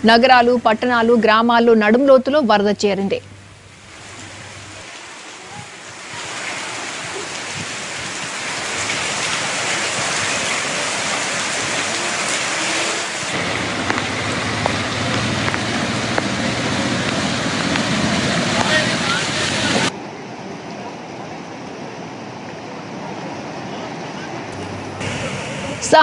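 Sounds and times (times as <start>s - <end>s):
heavy rain on water: 3.2s - 26.0s
deep rushing rumble: 13.3s - 20.0s.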